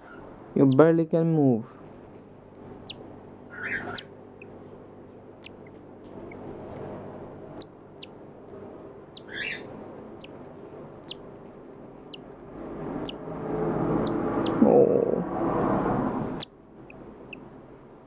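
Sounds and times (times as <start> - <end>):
bird chick peeping: 0.0 - 0.9, 2.6 - 4.6, 5.4 - 6.9, 7.5 - 13.2, 14.0 - 14.6
steady low hum: 0.0 - 18.0
raspy chick calls: 2.8 - 4.6, 9.1 - 10.4.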